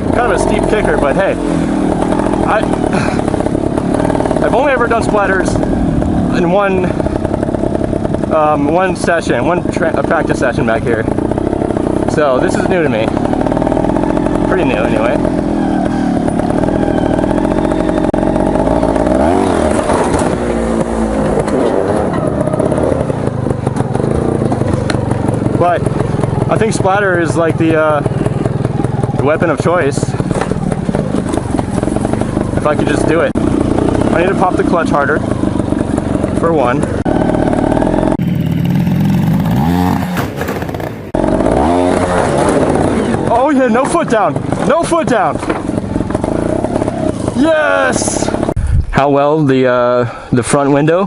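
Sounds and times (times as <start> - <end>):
motorcycle engine revving: 0.0 - 48.6
knocks and clatter: 15.0 - 47.4.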